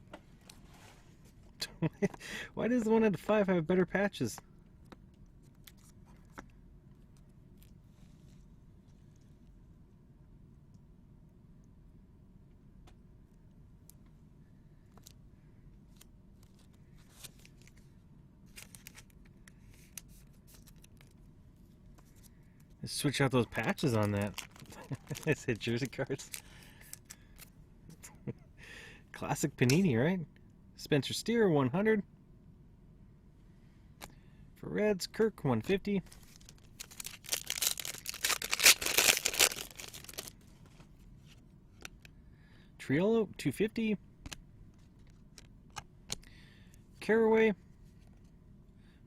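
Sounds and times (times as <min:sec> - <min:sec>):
low room hum: 0:00.0 - 0:49.0
wrapper tearing and crinkling: 0:23.6 - 0:26.4, 0:36.1 - 0:40.4.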